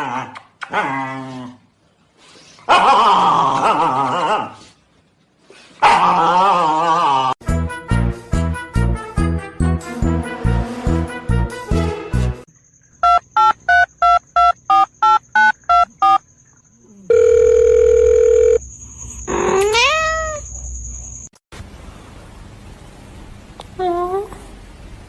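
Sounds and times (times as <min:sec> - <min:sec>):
music: 0:07.4 - 0:12.5
short electronic beeps: 0:13.0 - 0:16.2
cat meowing: 0:19.5 - 0:20.4.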